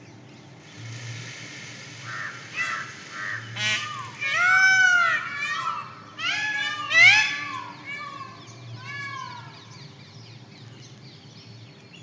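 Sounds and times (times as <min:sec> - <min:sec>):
peafowl calling: 0:02.0 - 0:08.4.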